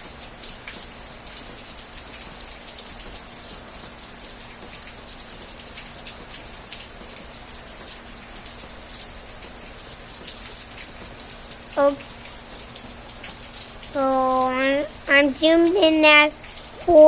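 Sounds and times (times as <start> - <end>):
raindrops ticking close by: 0.0 - 17.0
steady rain falling: 0.0 - 17.0.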